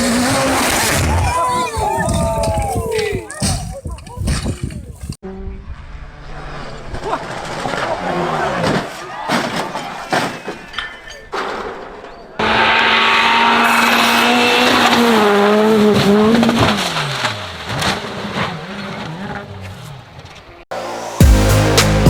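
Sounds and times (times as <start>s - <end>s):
car tyres squealing: 0.0s - 2.6s, 6.1s - 20.6s
car engine revving: 12.4s - 22.0s.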